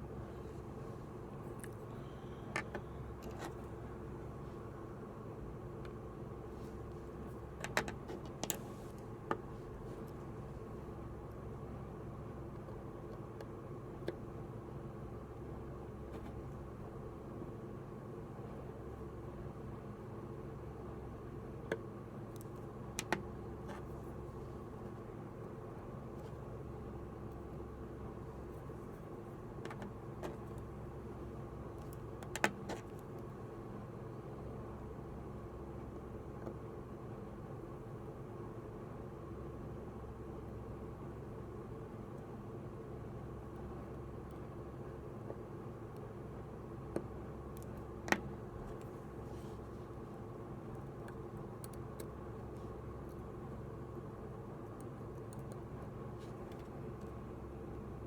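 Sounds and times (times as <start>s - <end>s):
steady low hum: 0.0s - 58.0s
light clicks and taps: 54.7s - 57.8s.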